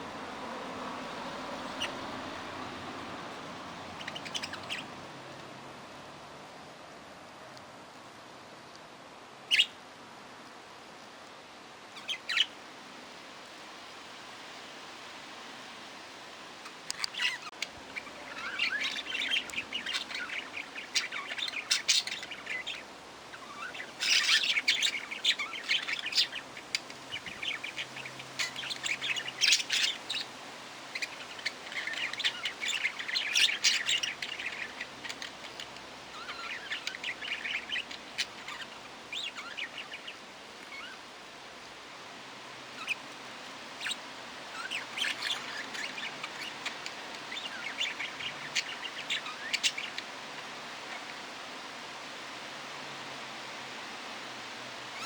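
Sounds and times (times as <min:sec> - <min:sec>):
parrots chirping and chattering: 0:01.0 - 0:05.4, 0:09.5 - 0:09.8, 0:11.9 - 0:12.6, 0:16.6 - 0:55.0.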